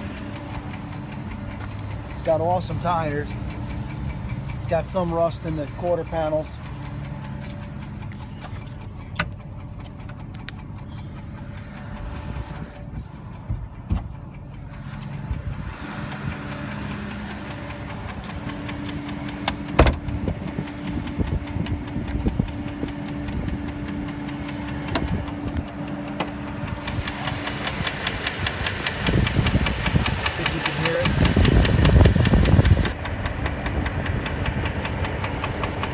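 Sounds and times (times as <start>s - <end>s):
car engine idling: 0.0s - 35.9s
light engine tick: 5.6s - 12.2s.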